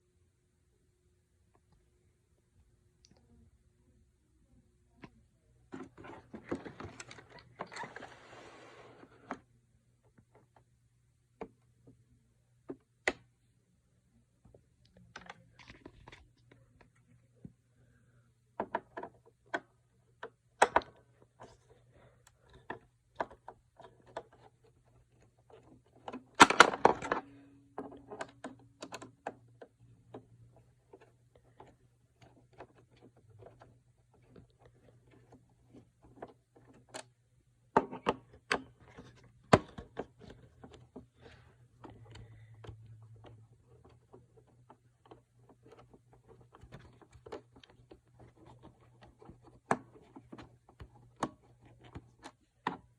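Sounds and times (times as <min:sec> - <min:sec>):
faint low hum: 0:00.0 - 0:52.9
plastic parts clicking and knocking: 0:05.7 - 0:08.0, 0:18.5 - 0:52.9
plastic parts clattering: 0:22.4 - 0:29.4.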